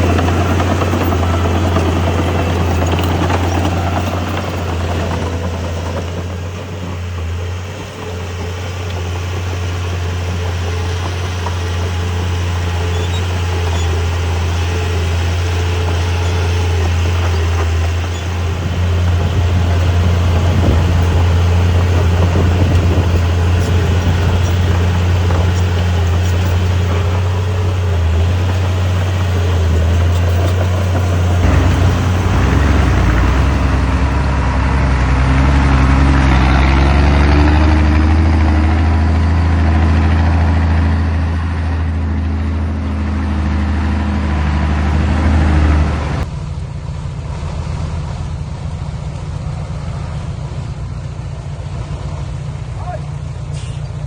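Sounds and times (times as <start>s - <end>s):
broad rushing noise: 0.0s - 34.7s
high droning tone: 0.0s - 34.8s
diesel truck engine running: 0.0s - 54.0s.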